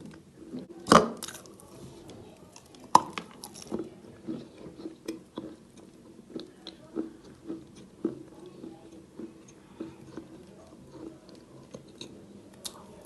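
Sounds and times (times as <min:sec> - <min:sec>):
chewing chalk crunches: 0:02.5 - 0:12.9.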